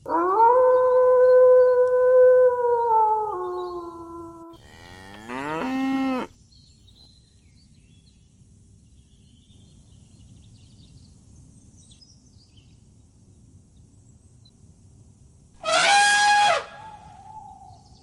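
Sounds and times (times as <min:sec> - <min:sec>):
cow mooing: 0:04.5 - 0:06.3.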